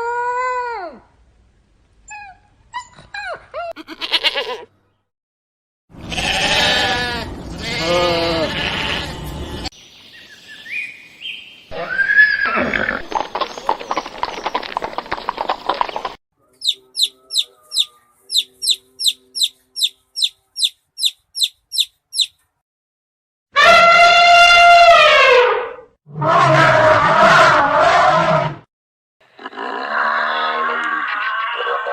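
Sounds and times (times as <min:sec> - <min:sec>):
goat bleats: 0:03.8 - 0:04.7, 0:06.0 - 0:09.4
faint chirping and pulsed calls: 0:16.5 - 0:22.4.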